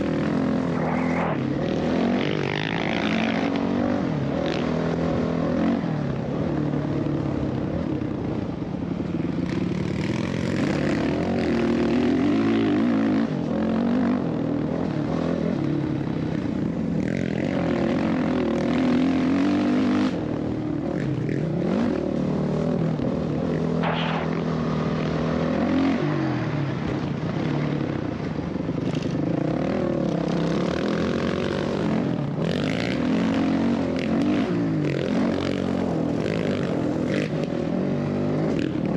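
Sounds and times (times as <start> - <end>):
dirt bike engine revving: 23.7 - 26.2.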